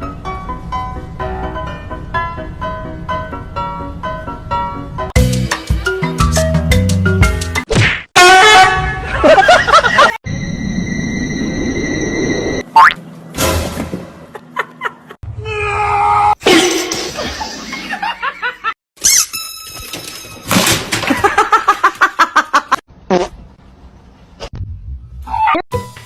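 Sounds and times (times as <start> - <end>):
people laughing: 9.1 - 10.2, 17.0 - 18.8.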